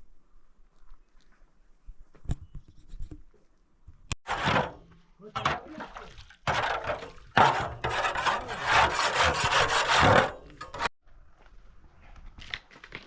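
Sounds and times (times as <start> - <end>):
hand tool scraping wood: 4.2 - 10.9.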